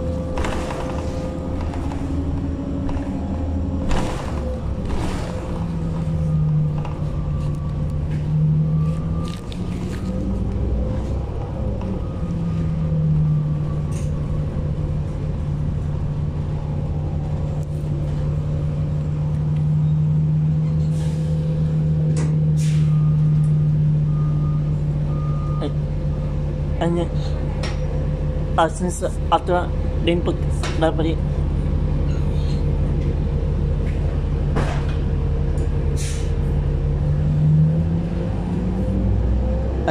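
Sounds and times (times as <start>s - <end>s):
bus engine drone: 0.0s - 39.9s
rattles and clicks: 0.2s - 3.2s.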